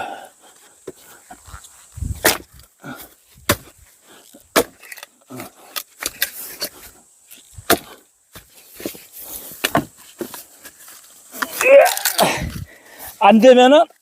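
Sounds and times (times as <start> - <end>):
firewood logs knocking together: 2.2 - 3.8, 4.4 - 6.8, 7.6 - 10.5.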